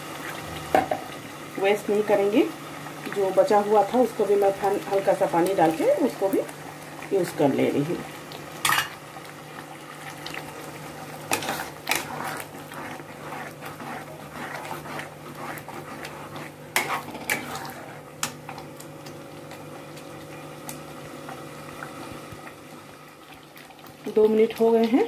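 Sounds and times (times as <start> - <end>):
thick paste bubbling in a pan: 0.0 - 25.0
metal spatula scraping a pan: 11.3 - 18.0.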